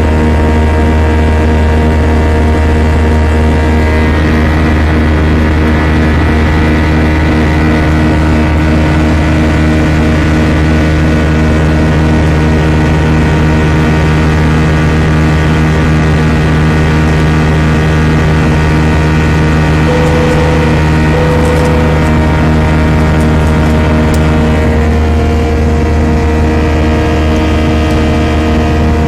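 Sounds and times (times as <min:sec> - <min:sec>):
jet engines droning: 0:17.2 - 0:29.0
short steady tone: 0:19.9 - 0:24.6.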